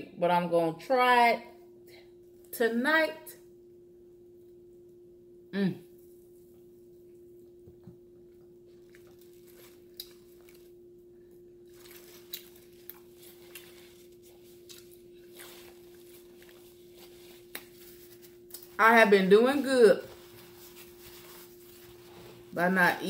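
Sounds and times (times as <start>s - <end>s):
steady low hum: 0.0s - 23.0s
faint chewing: 8.7s - 10.8s, 11.6s - 18.8s.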